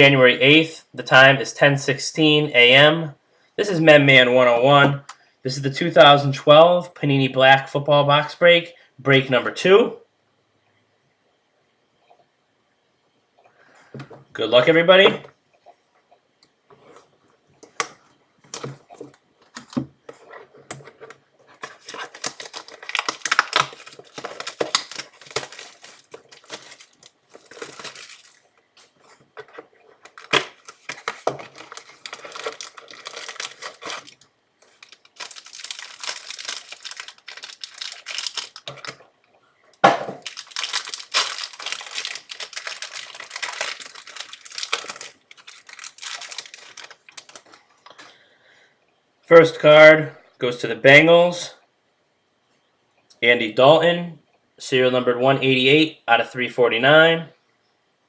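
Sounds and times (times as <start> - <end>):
plastic wrapping crinkling and tearing: 20.9 - 39.1, 40.2 - 47.6.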